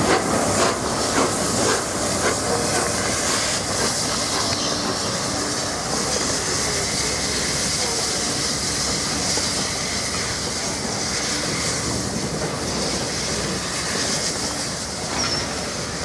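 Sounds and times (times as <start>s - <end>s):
train wheels rumbling on rails: 0.0s - 16.0s
high wheel squeal: 4.0s - 5.5s, 15.0s - 16.0s.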